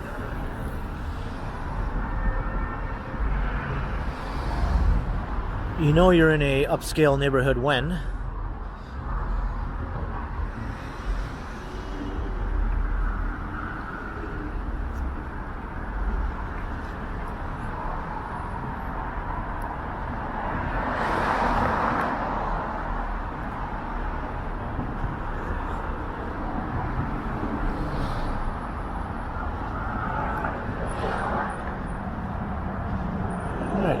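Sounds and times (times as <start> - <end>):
cars driving past: 8.6 - 34.0.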